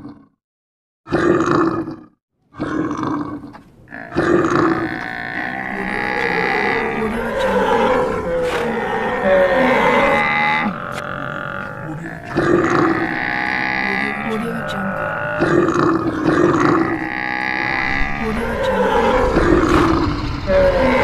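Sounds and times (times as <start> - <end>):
animal calls and grunts: 0.0 - 0.4, 1.1 - 21.0
animal roars: 1.1 - 21.0
steady tones: 4.4 - 21.0.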